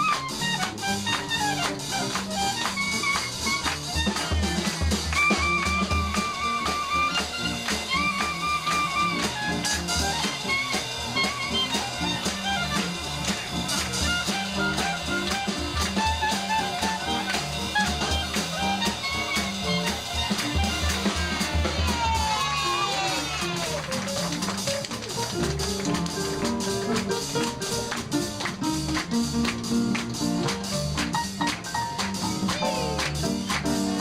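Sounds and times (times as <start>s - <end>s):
wind instrument high notes: 0.0s - 24.0s
bass line: 0.0s - 34.0s
drum kit and cymbals: 0.0s - 34.0s.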